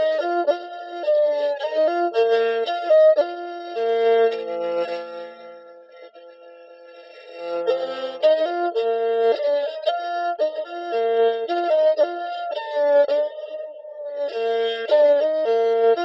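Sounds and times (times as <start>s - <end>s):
bamboo flute melody: 0.0s - 5.0s.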